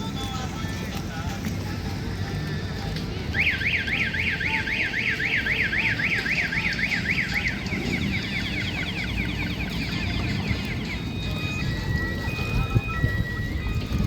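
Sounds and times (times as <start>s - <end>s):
car alarm whooping: 3.3s - 14.0s.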